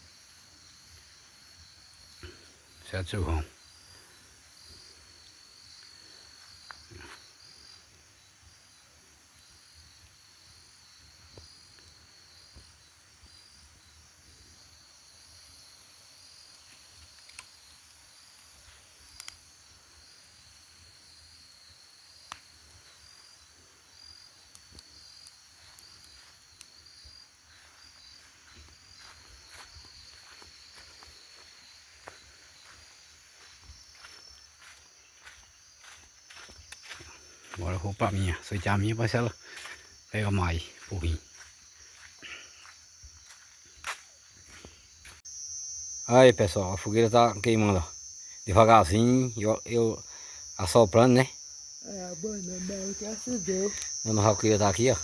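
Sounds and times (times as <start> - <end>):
crickets chirping: 0.0 - 55.0
faint clicks: 16.5 - 17.5, 19.1 - 19.4.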